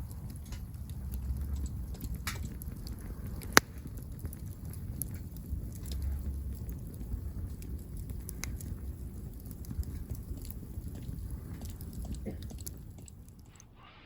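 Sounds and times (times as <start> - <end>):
campfire crackling: 0.0 - 13.7
low rumble: 0.0 - 14.0
sharp pops: 1.5 - 4.3.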